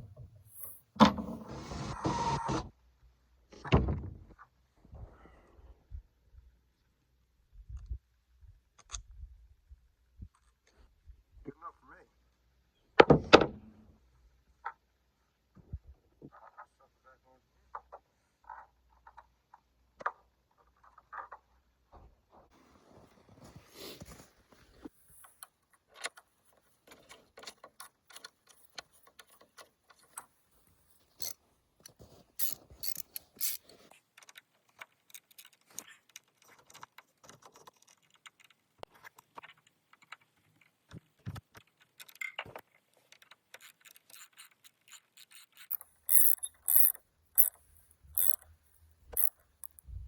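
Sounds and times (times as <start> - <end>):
metallic clicks and rattles: 32.4 - 40.9, 41.5 - 49.9.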